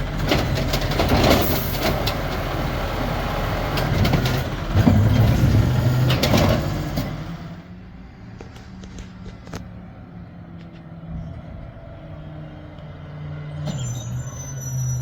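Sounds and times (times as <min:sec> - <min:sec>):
garbage truck diesel engine revving: 0:00.0 - 0:07.7.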